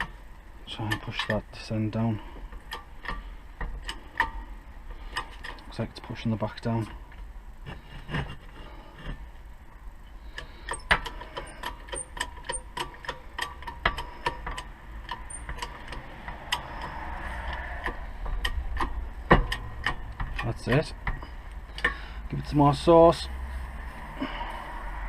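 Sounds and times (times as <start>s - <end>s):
sharp metallic clicks: 10.3s - 22.1s.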